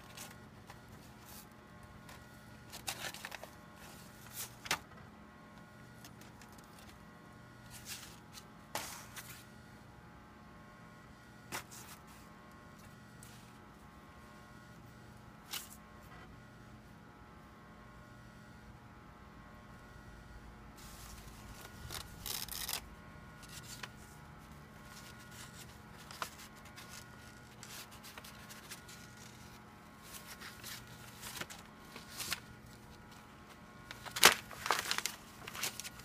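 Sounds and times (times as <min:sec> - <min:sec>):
paper rustling: 0:00.0 - 0:04.9, 0:11.5 - 0:12.2, 0:20.8 - 0:22.8, 0:23.4 - 0:36.0
electrical hum: 0:00.0 - 0:36.0.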